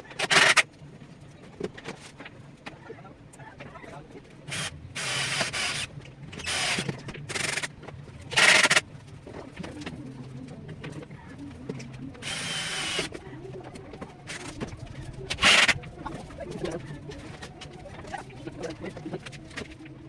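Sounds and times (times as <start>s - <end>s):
power tool bursts: 0.2s - 0.6s, 4.5s - 7.7s, 8.4s - 8.8s, 12.2s - 13.1s, 15.4s - 15.8s
pigeons cooing: 9.2s - 20.0s.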